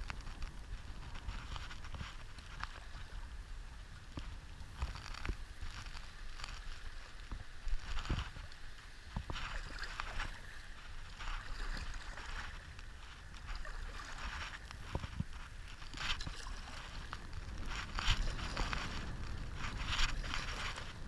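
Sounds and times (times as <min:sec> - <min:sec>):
flowing water: 0:00.0 - 0:21.0
paddle strokes splashing: 0:00.0 - 0:21.0
wind rumble on microphone: 0:00.0 - 0:21.0.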